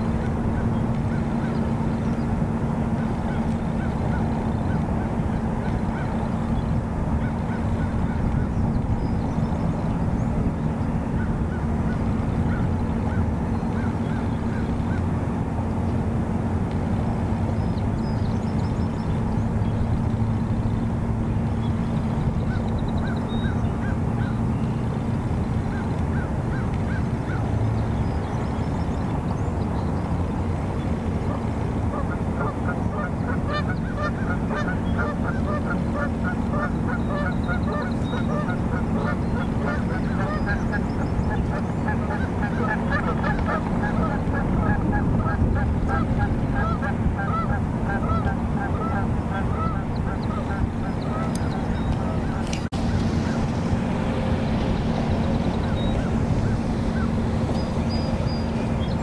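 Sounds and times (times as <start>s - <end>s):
faint hum: 0.0s - 59.0s
birds calling repeated notes: 30.8s - 59.0s
loud low rumble: 38.1s - 59.0s.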